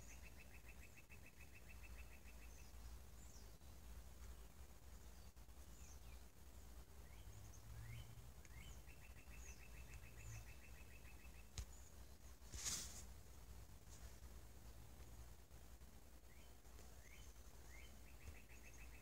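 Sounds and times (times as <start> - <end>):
rapid bird trill: 0.0 - 3.6, 7.0 - 12.2, 16.2 - 19.0
songbird chirps: 0.0 - 19.0
short rustle: 12.3 - 14.4.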